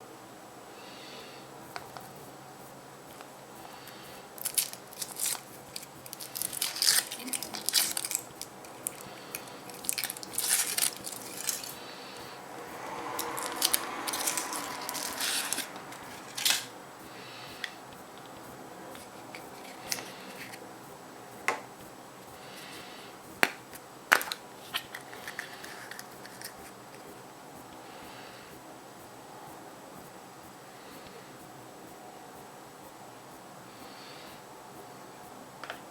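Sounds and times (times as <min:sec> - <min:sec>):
foil wrapper crinkling: 0:04.4 - 0:11.8, 0:13.2 - 0:16.7.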